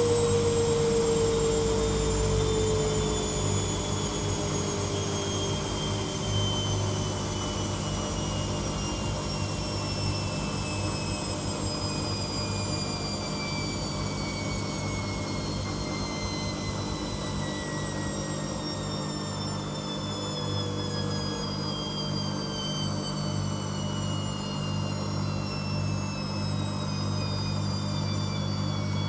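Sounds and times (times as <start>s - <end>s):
washing machine winding down: 0.0s - 20.8s.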